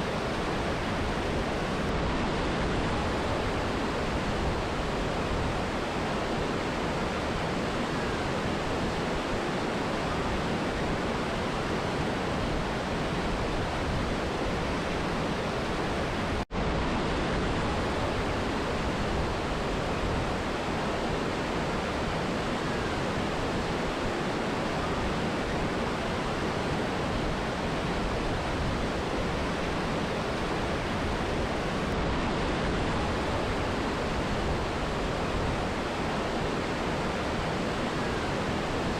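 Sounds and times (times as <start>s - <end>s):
rushing river and waterfall: 0.0s - 38.9s.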